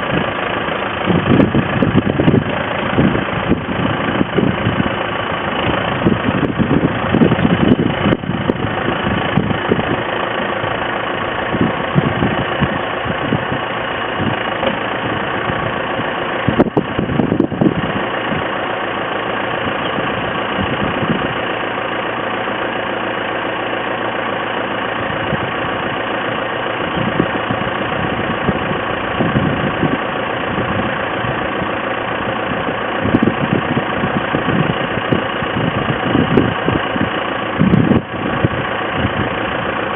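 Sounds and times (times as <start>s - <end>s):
tractor engine idling: 0.0s - 39.9s.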